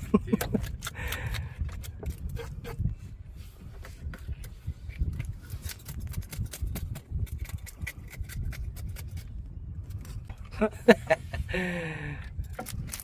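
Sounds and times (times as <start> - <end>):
knife scraping fish scales: 3.8 - 10.3.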